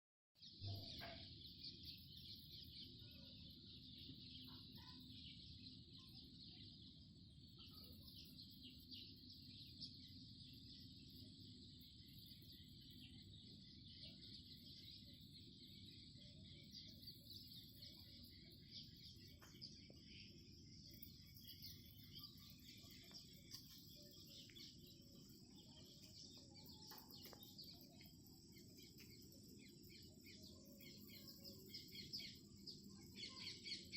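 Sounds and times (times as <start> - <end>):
high insect trill: 14.7 - 33.9.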